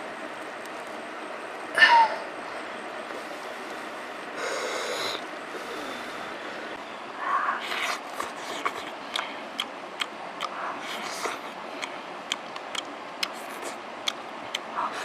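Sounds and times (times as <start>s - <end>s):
wet chewing with mouth clicks: 7.6s - 14.7s.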